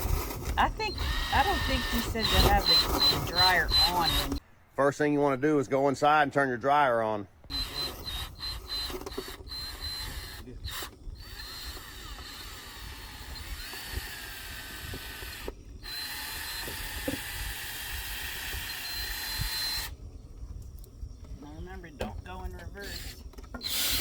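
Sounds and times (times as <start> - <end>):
power drill spinning brush in duct: 0.0 - 4.4, 7.5 - 20.0, 22.3 - 24.0.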